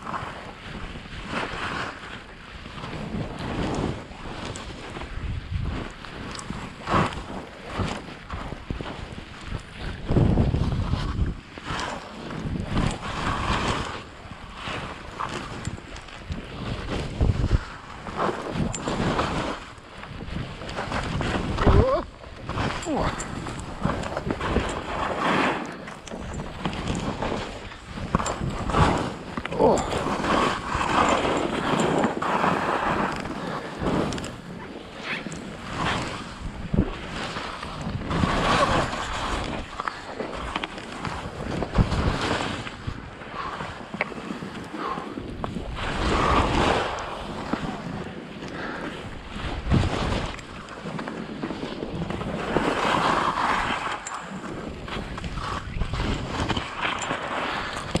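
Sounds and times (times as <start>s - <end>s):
skis sliding through snow: 0.0s - 58.0s
wind buffeting microphone: 0.0s - 58.0s
skis hissing through snow: 23.8s - 29.3s.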